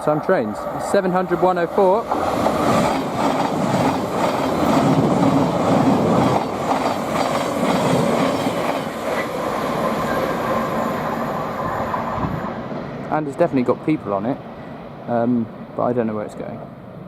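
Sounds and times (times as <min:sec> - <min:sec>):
train wheels rushing on rail: 0:00.0 - 0:17.0.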